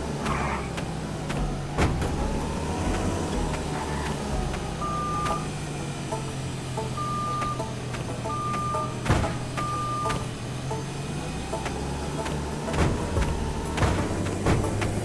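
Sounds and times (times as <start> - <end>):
truck engine running: 0.0 - 15.0
electronic warning beeps: 4.7 - 5.5, 6.9 - 10.3.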